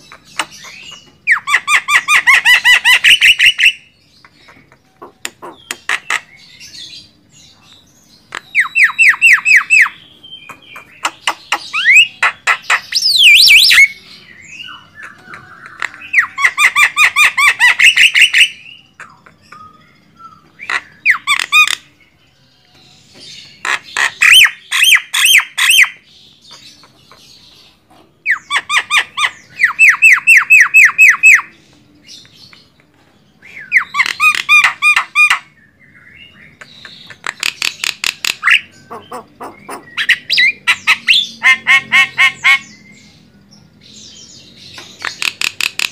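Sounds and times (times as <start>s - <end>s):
myna bird chattering calls: 0.0s - 6.5s, 8.2s - 14.0s, 36.4s - 42.8s, 44.8s - 45.9s.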